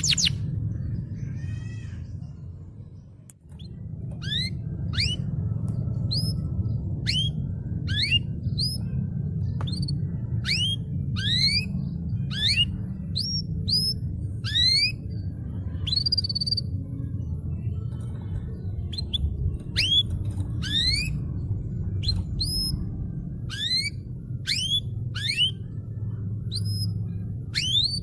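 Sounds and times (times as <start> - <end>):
steady low hum: 0.0 - 28.0
canary singing whistled notes: 4.2 - 5.3, 7.0 - 8.8, 9.6 - 15.0, 19.8 - 21.2, 23.5 - 25.6, 26.5 - 28.0.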